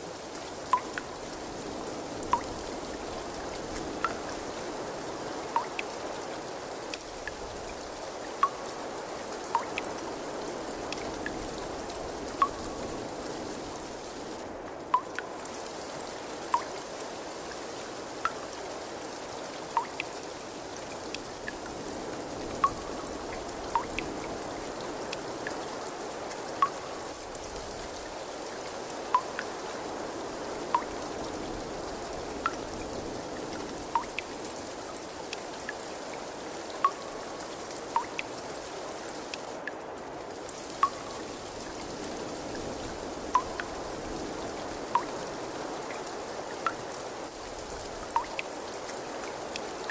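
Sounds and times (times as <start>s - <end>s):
trickle of running water: 0.0s - 49.9s
drops plinking into water: 0.7s - 1.1s, 5.6s - 5.8s, 8.4s - 8.6s, 16.5s - 16.7s, 19.8s - 20.1s, 29.1s - 29.5s, 30.7s - 30.9s, 33.9s - 34.3s, 38.0s - 38.3s, 43.4s - 43.7s, 48.2s - 48.4s.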